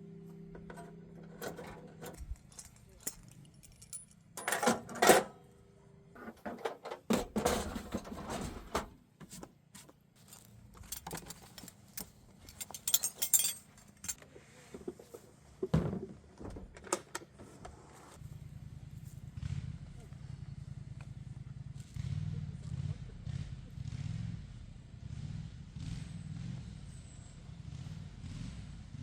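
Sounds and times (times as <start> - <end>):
small metal objects clinking: 1.4 - 5.0, 10.8 - 14.2.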